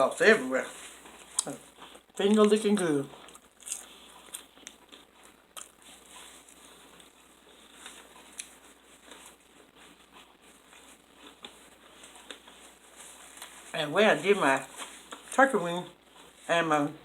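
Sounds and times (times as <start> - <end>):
person chewing: 1.0 - 13.6.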